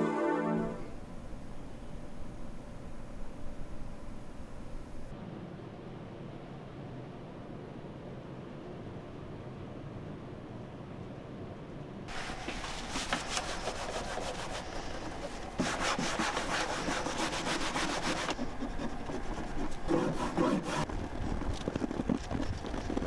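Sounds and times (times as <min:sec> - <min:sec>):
rapid scrubbing strokes: 0:12.1 - 0:23.0
soft scraping: 0:12.1 - 0:23.0.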